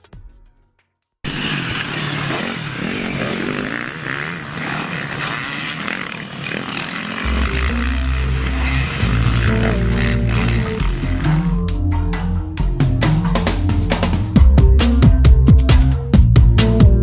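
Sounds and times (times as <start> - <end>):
motorcycle engines revving: 1.3 - 11.7
deep bass music: 7.2 - 17.0.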